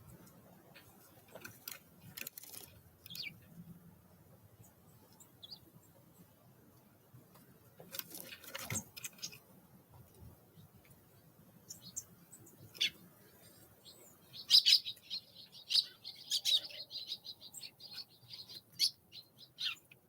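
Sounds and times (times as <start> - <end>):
high falling bird chirp: 11.7 - 20.0.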